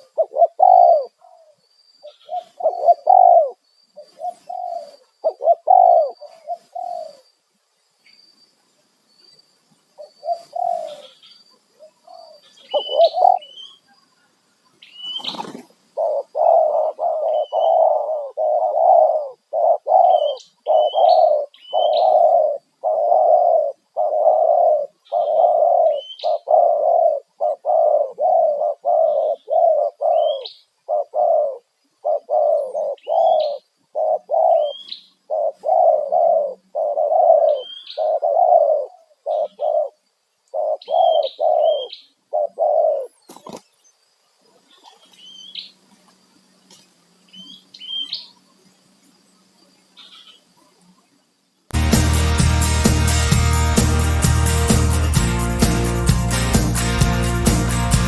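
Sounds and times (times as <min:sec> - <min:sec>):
dove cooing: 0:00.0 - 0:07.3, 0:10.0 - 0:11.2, 0:11.8 - 0:13.6, 0:15.1 - 0:43.6
small bird chirping: 0:00.0 - 0:07.4, 0:09.1 - 0:51.4.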